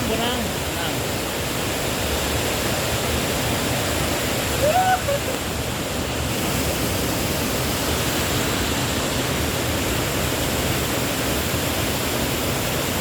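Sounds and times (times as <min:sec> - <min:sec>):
waterfall crashing into pool: 0:00.0 - 0:13.0.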